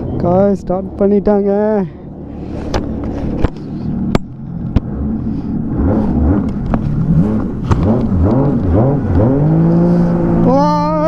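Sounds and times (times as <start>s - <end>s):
jet ski engine revving: 4.9s - 11.0s.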